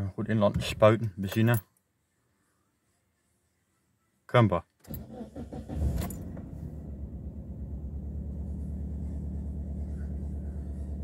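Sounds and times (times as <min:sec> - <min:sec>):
car engine starting and idling: 0:04.8 - 0:11.0.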